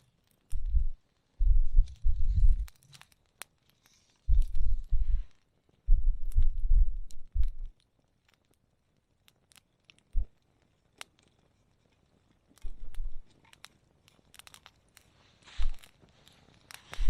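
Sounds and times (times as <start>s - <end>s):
campfire crackling: 0.0s - 17.0s
dull low thumps: 0.5s - 2.7s, 4.3s - 5.3s, 5.9s - 7.7s.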